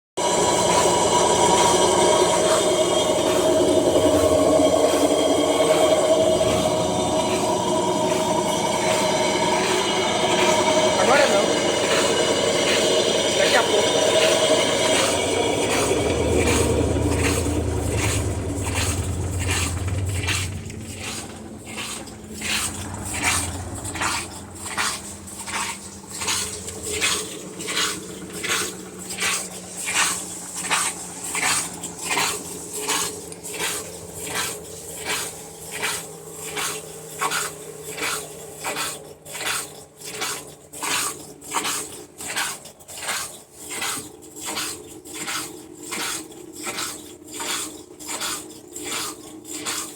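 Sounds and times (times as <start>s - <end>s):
drum clacking: 0.2s - 35.2s
washing machine spinning: 0.2s - 49.9s.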